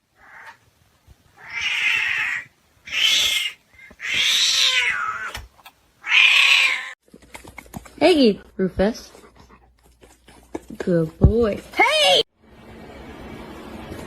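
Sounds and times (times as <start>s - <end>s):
cat calling loudly: 1.4s - 5.4s, 6.0s - 7.0s.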